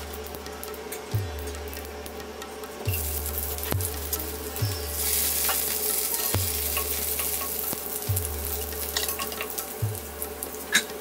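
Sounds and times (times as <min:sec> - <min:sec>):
low steady hum: 0:00.0 - 0:11.0
spices sizzling in hot oil: 0:00.0 - 0:11.0
oil popping: 0:02.9 - 0:10.9.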